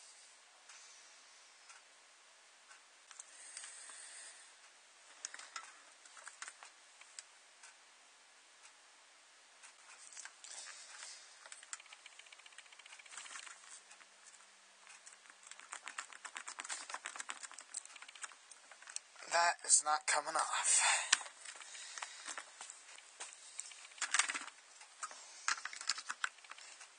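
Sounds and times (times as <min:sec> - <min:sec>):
fast ticks: 0:09.7 - 0:19.3, 0:21.1 - 0:26.9
packaging rustling: 0:15.2 - 0:19.0
plastic parts clicking: 0:23.6 - 0:26.9.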